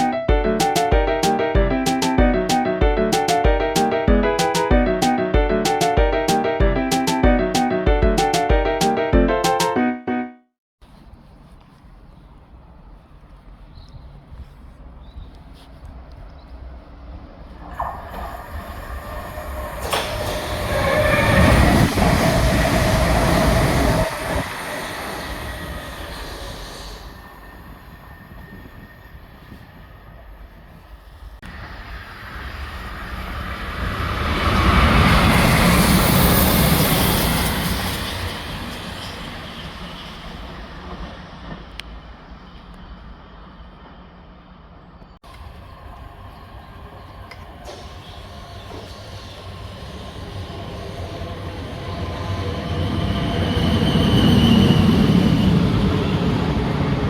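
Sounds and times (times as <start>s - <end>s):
train wheels rushing on rail: 17.2s - 44.1s, 45.3s - 57.0s.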